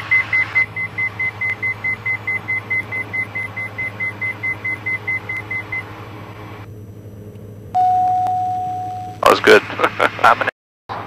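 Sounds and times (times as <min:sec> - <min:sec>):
aircraft engine drone: 0:00.0 - 0:11.0
cockpit warning beeps: 0:00.1 - 0:05.9, 0:07.8 - 0:09.4.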